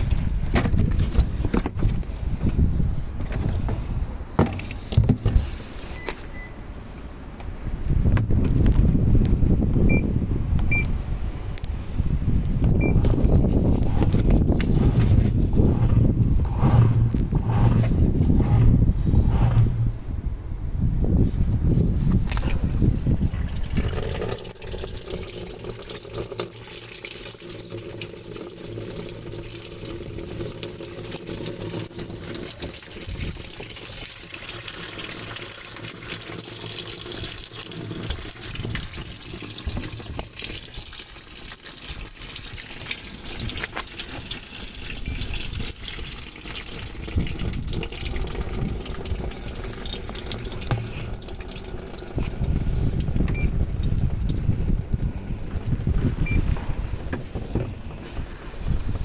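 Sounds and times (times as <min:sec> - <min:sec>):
washing machine filling with water: 0:00.0 - 0:02.8, 0:12.8 - 0:20.0, 0:22.4 - 0:59.0.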